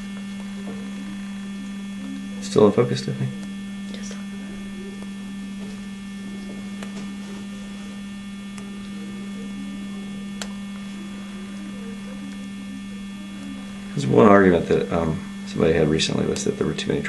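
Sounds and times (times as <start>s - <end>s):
steady electrical hum: 0.0s - 17.0s
faint clicks: 10.4s - 10.8s.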